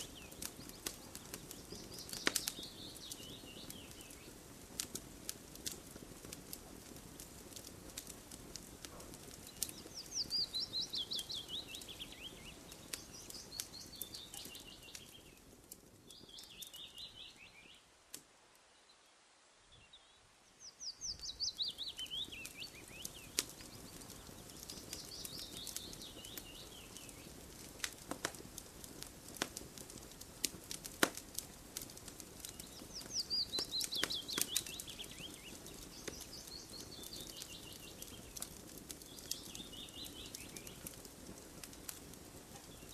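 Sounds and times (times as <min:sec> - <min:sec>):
campfire popping and crackling: 0:00.0 - 0:18.7, 0:20.6 - 0:42.9.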